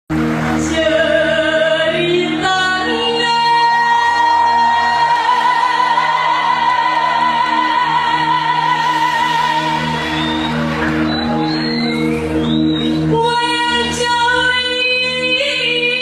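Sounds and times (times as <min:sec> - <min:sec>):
woman singing: 0:00.6 - 0:09.9, 0:13.1 - 0:16.0
instrumental accompaniment: 0:03.4 - 0:15.2.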